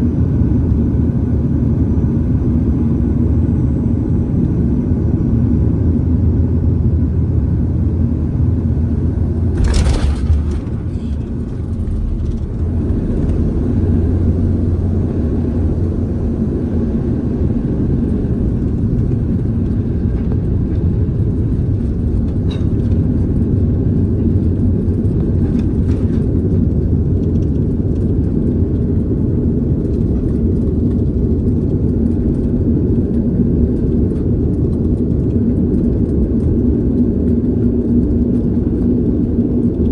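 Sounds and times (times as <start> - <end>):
airliner cabin engine rumble: 0.0 - 39.9
sharp clack: 9.6 - 12.6.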